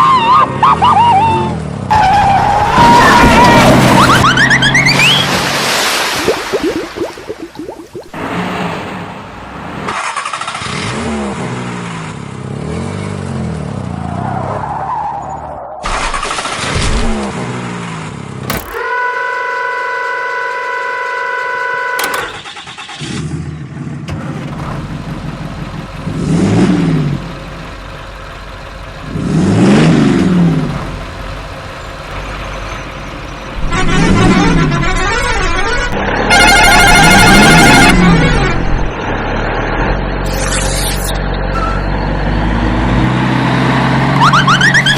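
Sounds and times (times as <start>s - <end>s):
multi-note horn: 18.6s - 22.5s, 33.6s - 38.7s
vehicle engines revving: 21.6s - 44.9s.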